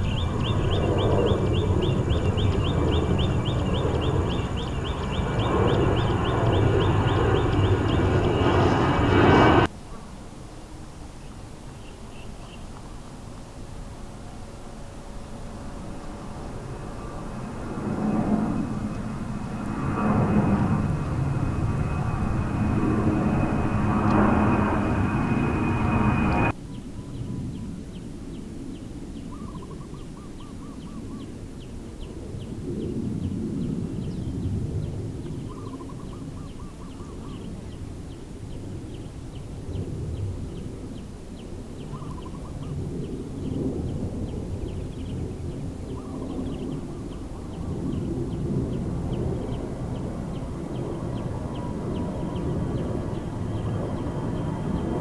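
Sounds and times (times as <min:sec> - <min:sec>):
bird trilling call: 0:00.0 - 0:09.6
loud aircraft sound: 0:00.0 - 0:09.7, 0:13.5 - 0:26.6, 0:30.7 - 0:55.0
low wind-like rumble: 0:00.0 - 0:09.7, 0:10.3 - 0:55.0.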